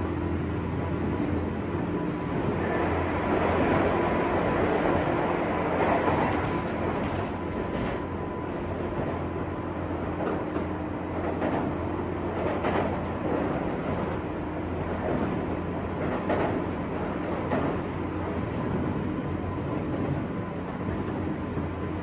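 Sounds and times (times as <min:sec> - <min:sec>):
train interior rumble: 0:00.0 - 0:22.0
faint clicks from rails: 0:05.7 - 0:09.3, 0:10.0 - 0:19.0.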